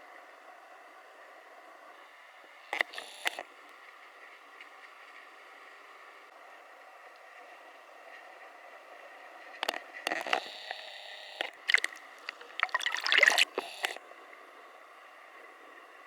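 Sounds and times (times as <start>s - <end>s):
crackling and splashing bursts: 11.4s - 14.0s
water hissing: 11.5s - 14.0s.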